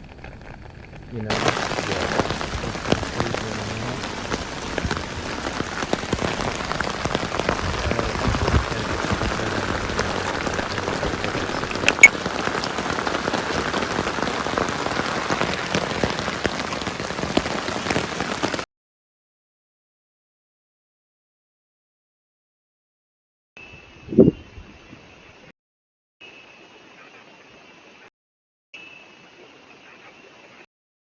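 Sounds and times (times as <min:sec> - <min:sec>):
steady rain falling: 0:00.0 - 0:18.7.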